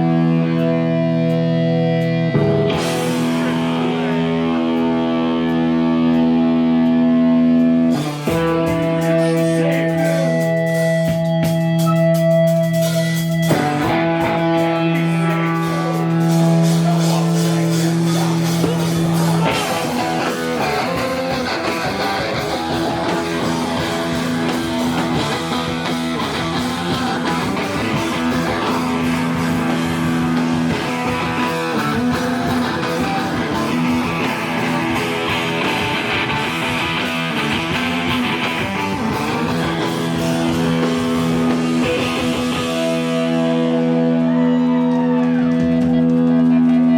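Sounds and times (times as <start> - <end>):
guitar chord ringing: 0.0 - 45.4
rock band playing: 0.0 - 46.9.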